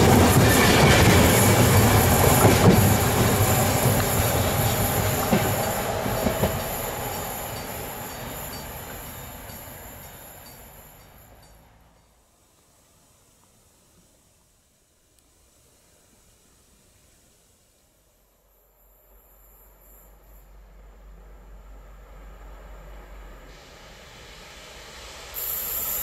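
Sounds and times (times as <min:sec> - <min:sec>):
train wheels clattering over rail joints: 0:00.0 - 0:12.1.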